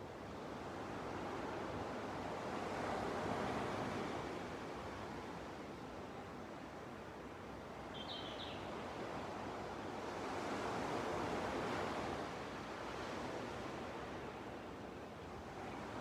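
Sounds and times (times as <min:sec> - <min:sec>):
waves washing onto a beach: 0:00.1 - 0:07.9, 0:08.9 - 0:16.0
bird chirping: 0:08.0 - 0:08.7.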